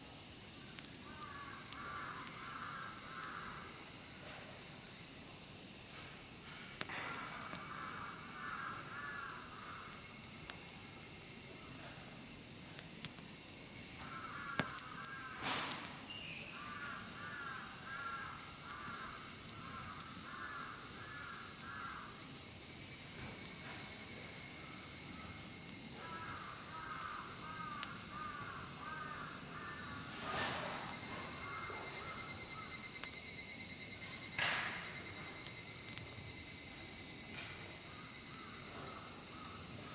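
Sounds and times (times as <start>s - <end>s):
insects chirping chorus: 0.0s - 39.9s
sharp snaps: 14.5s - 16.0s.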